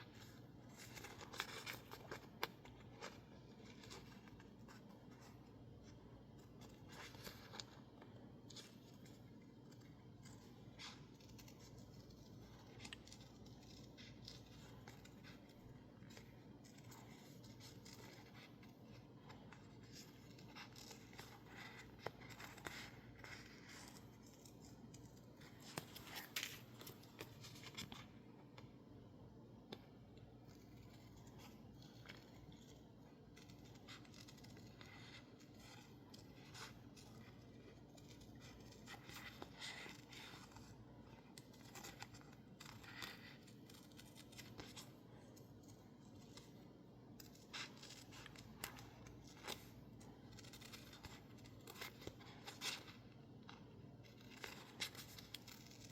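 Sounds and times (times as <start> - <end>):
scissors snipping paper: 0.0 - 28.1, 29.7 - 55.9.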